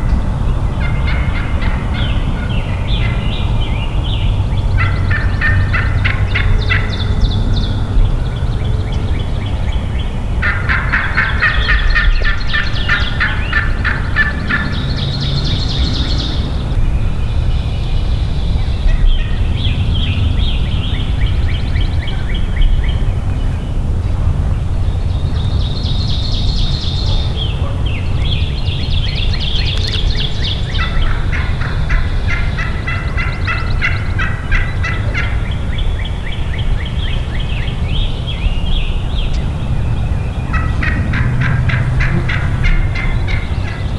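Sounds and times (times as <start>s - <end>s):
turkey gobbling: 0.0s - 3.6s, 4.7s - 7.9s, 10.4s - 16.8s, 29.4s - 35.8s, 40.3s - 43.9s.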